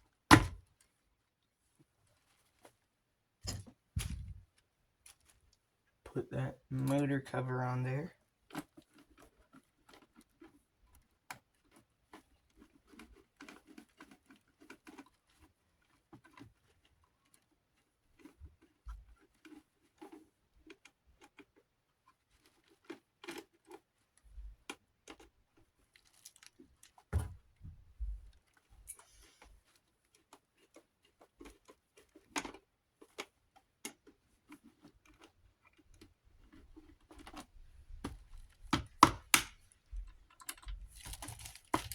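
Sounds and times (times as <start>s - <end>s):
light clicks and taps of parts: 37.1s - 41.9s.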